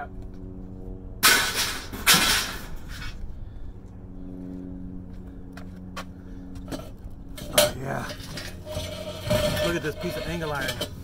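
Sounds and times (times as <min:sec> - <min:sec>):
engine hum: 0:00.0 - 0:11.0
scrap metal crashing: 0:01.2 - 0:03.1, 0:07.4 - 0:11.0.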